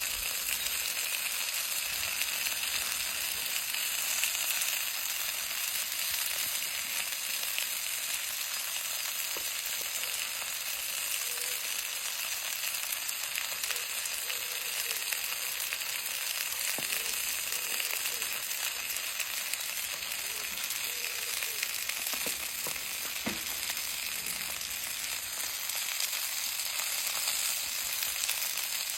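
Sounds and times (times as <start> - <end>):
steak sizzling in a pan: 0.0 - 28.9
fat popping: 22.0 - 24.6.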